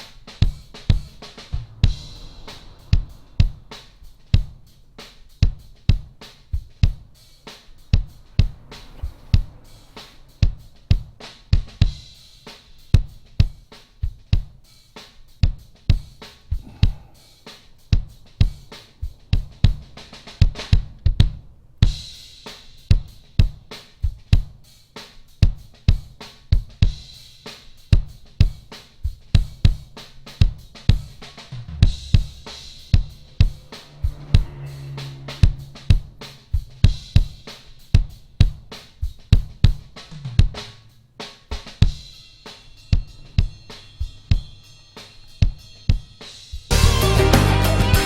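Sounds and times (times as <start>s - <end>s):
hi-hat and cymbal: 0.0s - 48.0s
kick drum: 20.8s - 21.5s.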